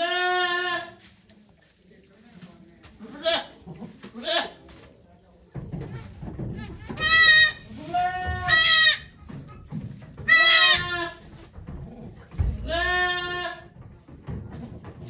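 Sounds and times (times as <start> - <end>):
goat bleating: 0.0 - 0.9, 6.6 - 9.2, 10.3 - 11.2, 12.6 - 13.6.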